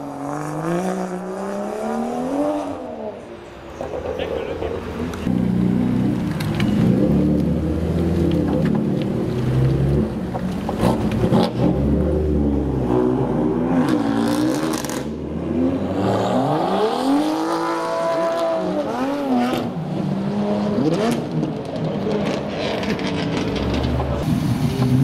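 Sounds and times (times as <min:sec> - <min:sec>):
engine revving: 0:05.2 - 0:21.3.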